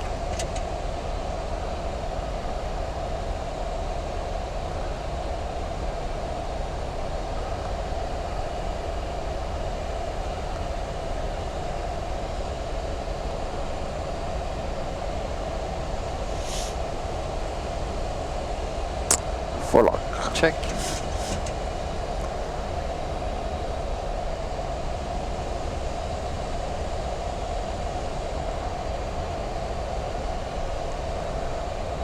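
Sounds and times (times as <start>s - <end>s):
airplane cockpit rumble: 0.0s - 32.0s
airflow hiss: 16.2s - 16.9s, 19.6s - 21.9s.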